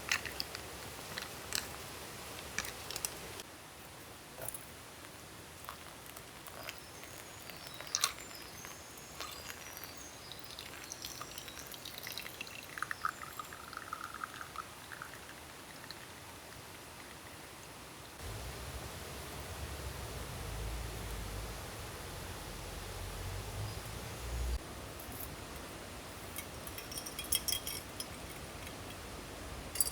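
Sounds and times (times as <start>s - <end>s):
small objects clicking and tapping: 0.0s - 1.8s, 5.6s - 11.8s, 26.4s - 29.0s
soft outdoor hiss: 0.0s - 29.9s
quick small clinks: 26.4s - 29.0s.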